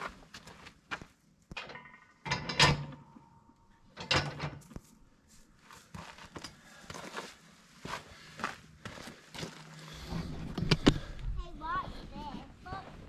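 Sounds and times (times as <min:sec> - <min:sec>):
steel parts clanking: 0:01.6 - 0:04.7.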